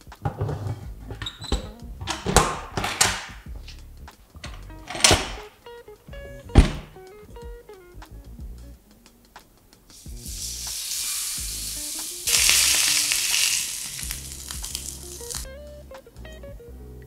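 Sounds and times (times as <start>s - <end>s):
chicken sizzling in oil: 9.9s - 15.5s.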